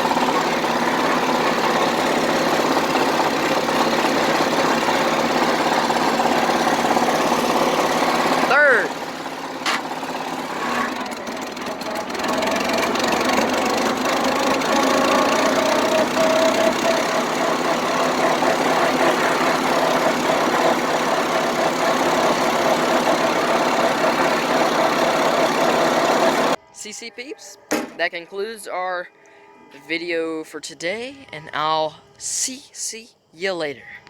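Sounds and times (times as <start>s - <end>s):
tractor engine running: 0.0s - 26.6s.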